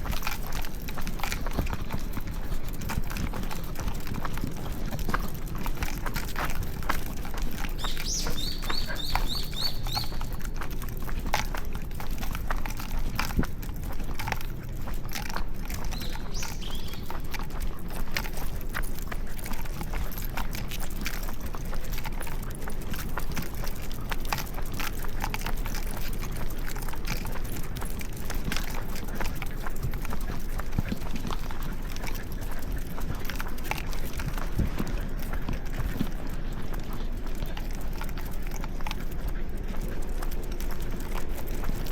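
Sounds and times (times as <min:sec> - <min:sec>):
footsteps on pavement: 0:00.0 - 0:41.9
street hum: 0:00.0 - 0:41.9
bird chirping: 0:07.8 - 0:10.3, 0:15.9 - 0:17.2.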